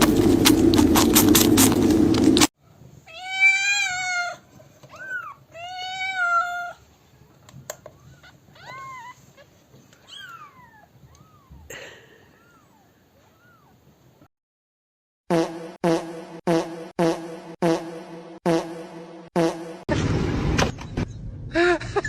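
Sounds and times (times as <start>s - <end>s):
cat meowing: 3.1s - 6.8s, 8.2s - 9.4s, 10.0s - 11.6s.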